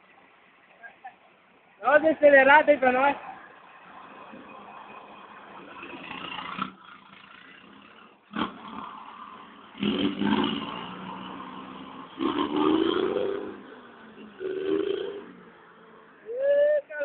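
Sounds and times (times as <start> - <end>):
truck diesel engine revving: 5.7 - 15.8.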